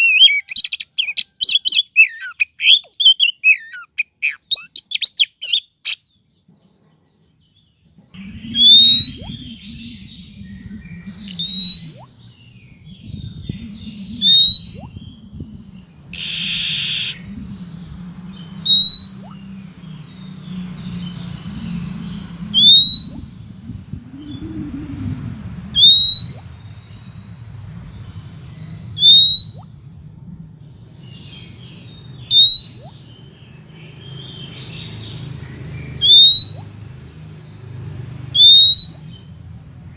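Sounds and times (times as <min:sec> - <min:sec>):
bird rising whistled call: 0:08.2 - 0:12.2, 0:13.6 - 0:15.2, 0:16.1 - 0:17.4, 0:18.6 - 0:19.4, 0:22.5 - 0:25.1, 0:25.8 - 0:26.5, 0:29.0 - 0:29.8, 0:32.3 - 0:33.0, 0:36.0 - 0:36.7, 0:38.4 - 0:39.1
harsh raspy bird note: 0:16.2 - 0:17.2.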